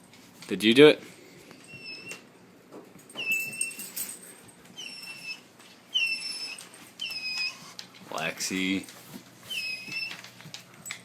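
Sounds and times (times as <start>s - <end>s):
dog whining: 1.7s - 2.3s, 3.1s - 4.0s, 4.7s - 8.0s, 9.4s - 10.4s.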